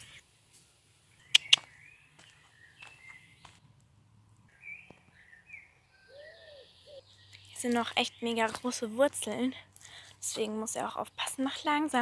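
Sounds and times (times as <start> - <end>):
birds chirping: 1.1 - 3.7, 4.4 - 12.0
sharp clicks: 1.3 - 1.6.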